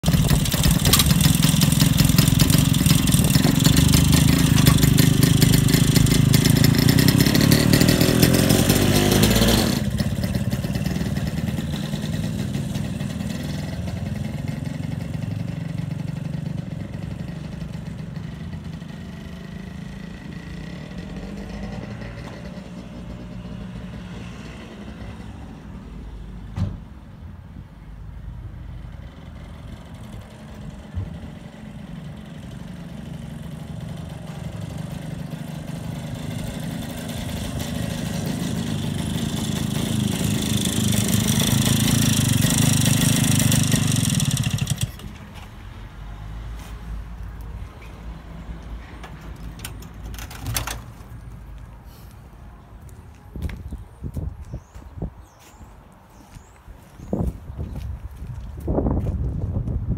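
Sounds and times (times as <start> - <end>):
two-stroke engine running: 0.0 - 22.1, 29.0 - 45.3.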